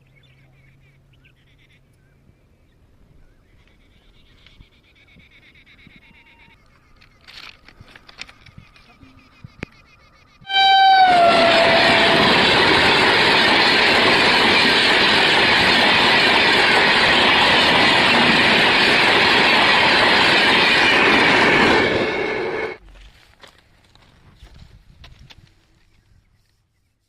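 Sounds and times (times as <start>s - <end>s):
train wheel and rail noise: 5.8s - 22.8s
train horn: 10.5s - 13.5s.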